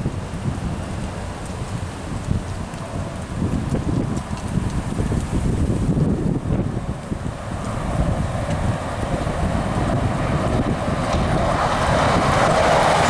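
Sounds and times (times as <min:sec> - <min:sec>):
passenger train running: 0:00.0 - 0:13.0
wind buffeting microphone: 0:00.0 - 0:13.0.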